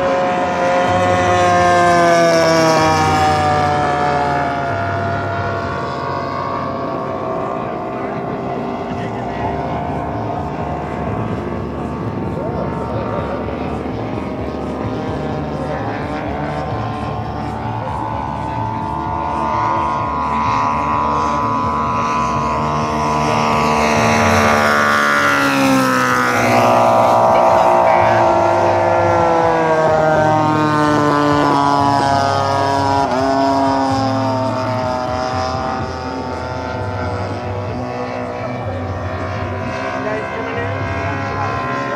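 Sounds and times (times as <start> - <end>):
model plane engine flying past: 0.0 - 41.9.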